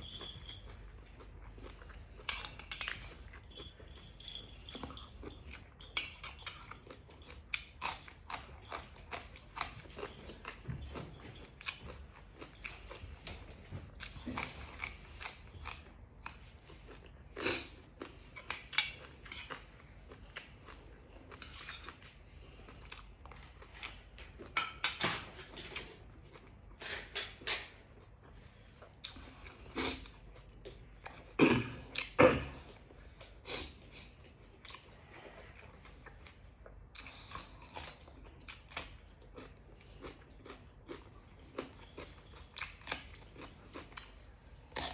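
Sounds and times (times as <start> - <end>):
person chewing and biting: 4.9 - 24.6, 35.6 - 44.9.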